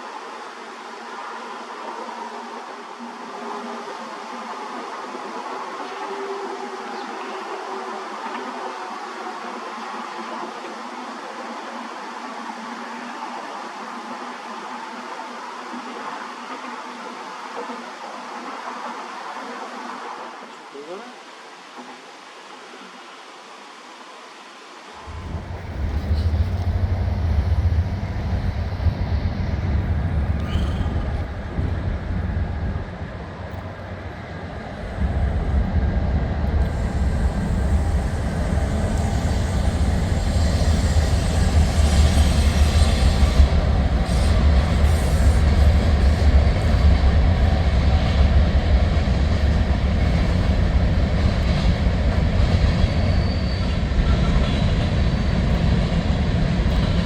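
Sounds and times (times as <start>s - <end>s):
freight train rumbling past: 25.0s - 57.0s
faint wheel squeal: 30.3s - 31.3s, 52.7s - 55.1s.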